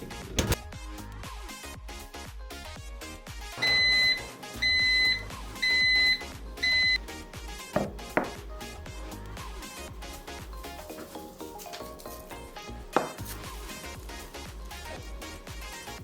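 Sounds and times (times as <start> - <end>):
background music: 0.0 - 16.0
appliance electronic beeps: 3.5 - 7.3.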